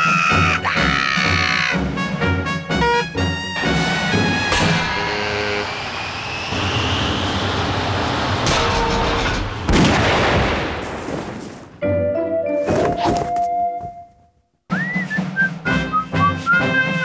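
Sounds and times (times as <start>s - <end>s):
brass-led cartoon music: 0.0s - 5.7s, 15.0s - 17.0s
cartoon crashing noise: 3.7s - 5.6s
rising whistle: 4.3s - 7.7s, 14.7s - 17.0s
loud bang: 5.9s - 11.0s.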